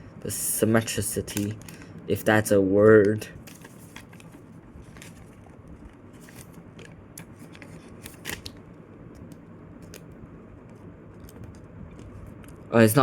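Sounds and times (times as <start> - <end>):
paper crinkling: 3.4 - 8.6.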